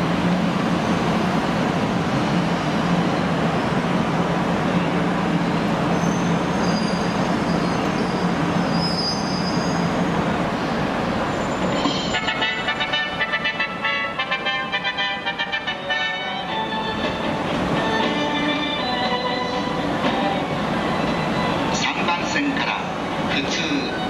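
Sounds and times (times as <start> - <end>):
electric train rumbling: 0.0 - 24.0
wheel squeals: 5.9 - 10.0.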